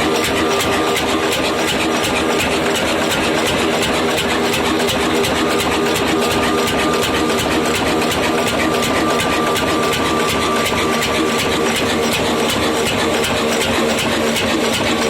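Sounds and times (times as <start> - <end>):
diesel engine running: 0.0 - 15.0
thin steady whine: 4.5 - 13.8.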